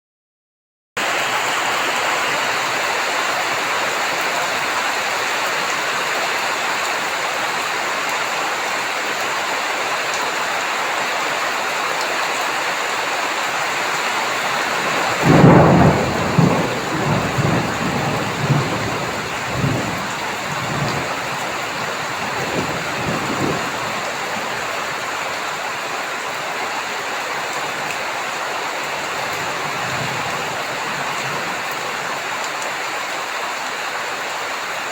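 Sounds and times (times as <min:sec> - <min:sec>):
heavy rain falling: 0:01.0 - 0:34.9
thunder clap and rumble: 0:14.0 - 0:25.0.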